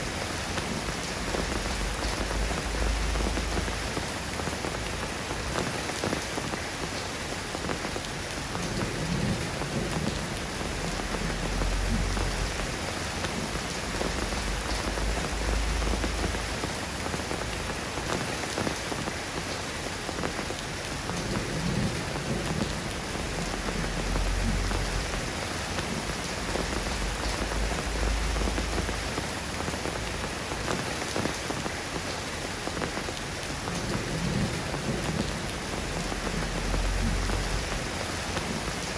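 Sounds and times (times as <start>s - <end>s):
steady rain: 0.0s - 38.9s
thunder rumbling: 8.6s - 18.1s, 21.2s - 30.8s, 33.7s - 38.8s.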